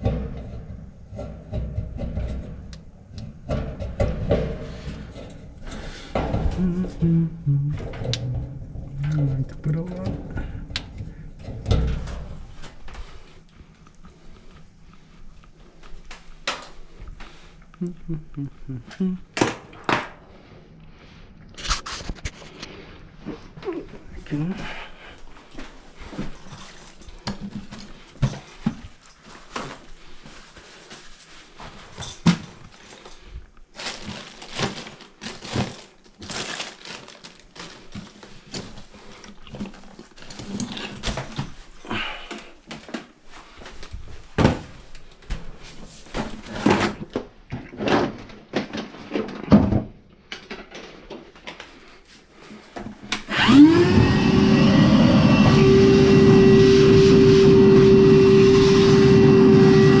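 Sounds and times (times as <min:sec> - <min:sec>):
dryer motor humming: 0:53.3 - 1:00.0.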